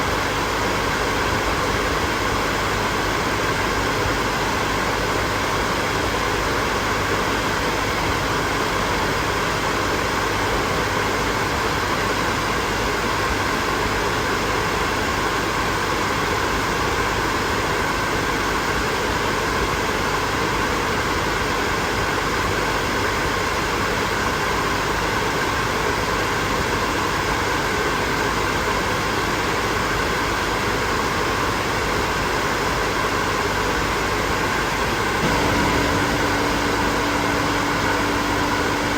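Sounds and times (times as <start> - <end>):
hair dryer running: 34.5 - 38.9.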